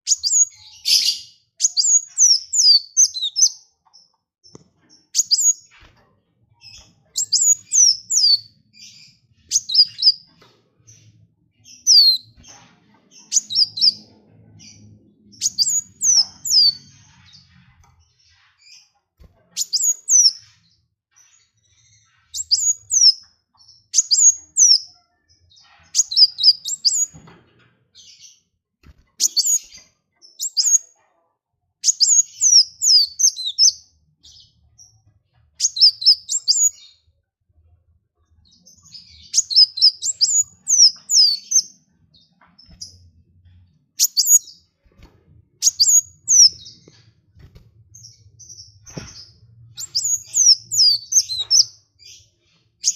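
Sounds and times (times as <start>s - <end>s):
songbird chirping: 0.0s - 19.0s, 31.8s - 37.2s, 38.2s - 52.9s.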